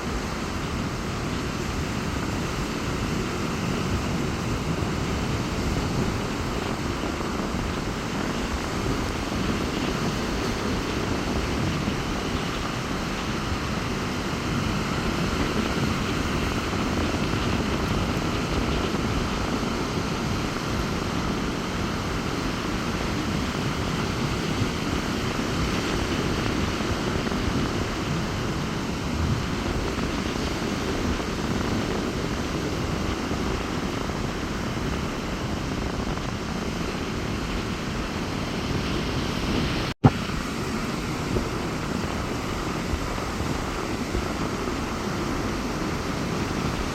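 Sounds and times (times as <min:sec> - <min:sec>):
sea waves surging onto beach: 0:00.0 - 0:46.9
strong wind: 0:00.0 - 0:46.9.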